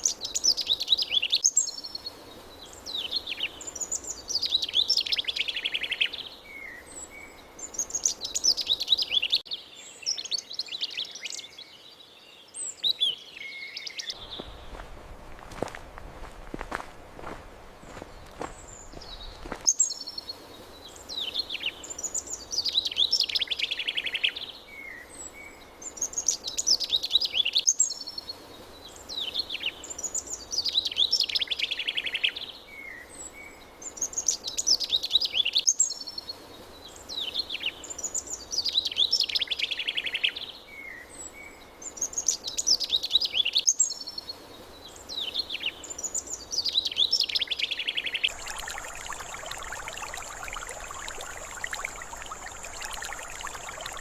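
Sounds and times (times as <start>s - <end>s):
faint background hiss: 0.0s - 54.0s
songbird singing trills: 45.0s - 54.0s.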